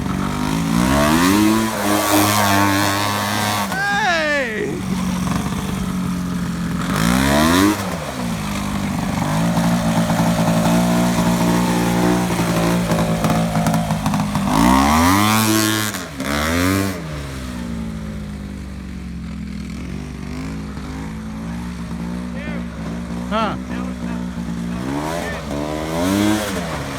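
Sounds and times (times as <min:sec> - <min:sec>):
tractor engine revving under load: 0:00.0 - 0:26.9.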